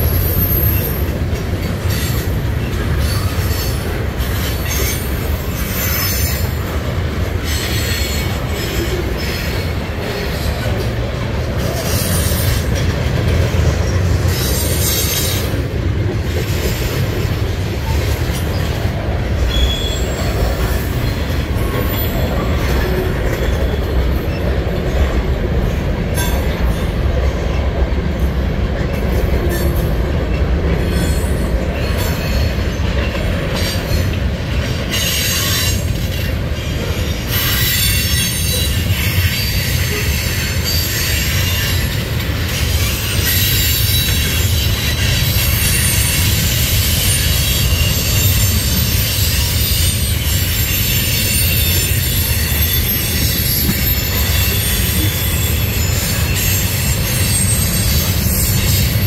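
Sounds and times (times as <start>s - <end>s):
high-pitched wheel squeal: 0.0s - 1.2s, 19.5s - 21.0s, 42.6s - 59.0s
train wheels rumbling on rail: 0.0s - 59.0s.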